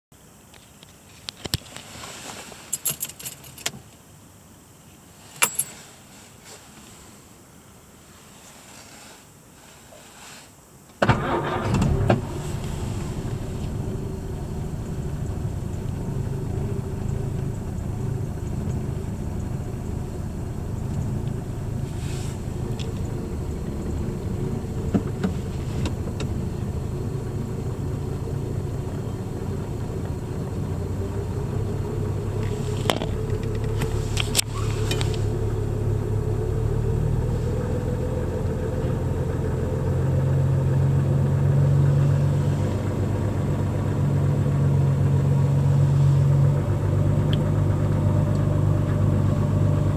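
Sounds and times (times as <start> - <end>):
car engine idling: 11.0 - 49.9.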